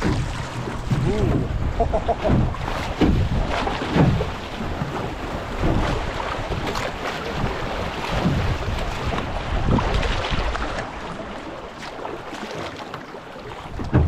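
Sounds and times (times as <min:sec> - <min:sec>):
wind buffeting microphone: 0:00.0 - 0:10.8
sharp water splashes: 0:00.0 - 0:14.0.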